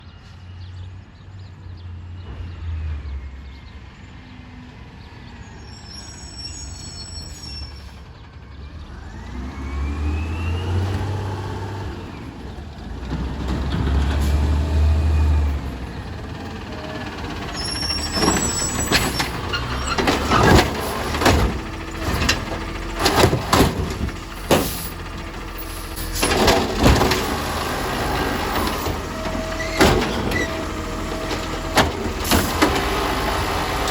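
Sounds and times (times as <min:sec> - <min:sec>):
garbage truck engine: 0:06.0 - 0:33.9
loud clanks and bangs: 0:13.0 - 0:33.9.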